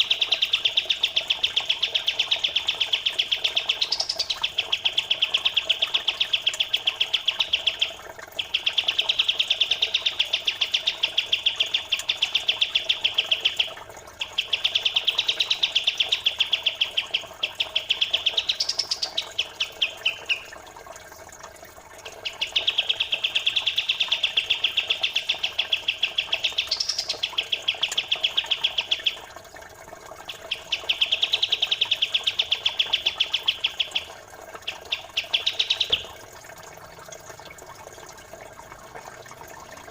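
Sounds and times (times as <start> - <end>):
trickle of running water: 0.0 - 39.9
songbird chattering: 1.7 - 13.6, 14.2 - 20.5, 22.1 - 29.2, 30.3 - 36.1.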